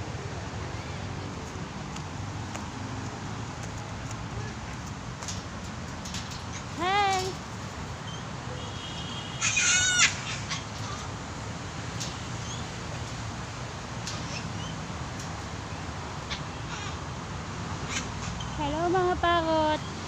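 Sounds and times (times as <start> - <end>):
parrot calling loudly: 9.4 - 11.0.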